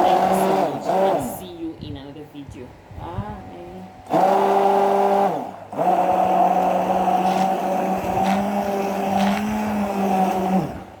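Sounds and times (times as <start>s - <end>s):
small electric motor running: 4.1s - 11.0s.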